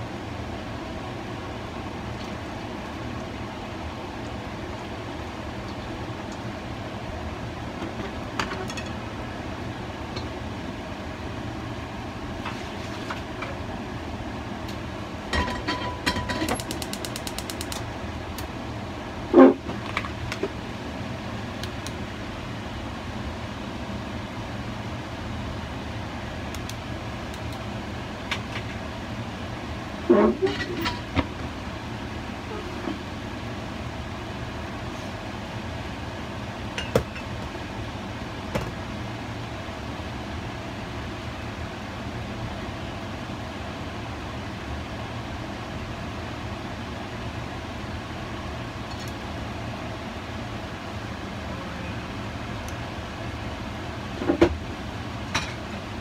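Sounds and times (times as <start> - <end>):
cooking appliance humming: 0.0 - 56.0.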